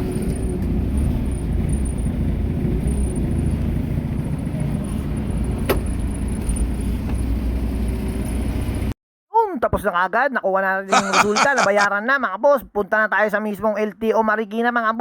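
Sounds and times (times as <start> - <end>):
vehicle rumble while moving: 0.0 - 8.9.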